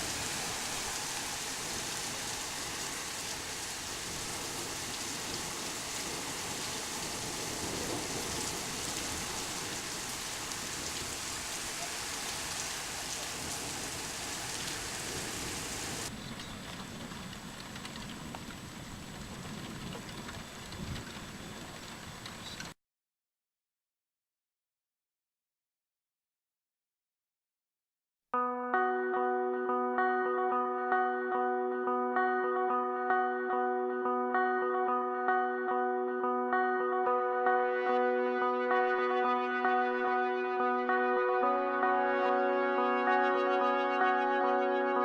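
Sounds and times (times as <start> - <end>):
heavy rain pouring: 0.0 - 22.3.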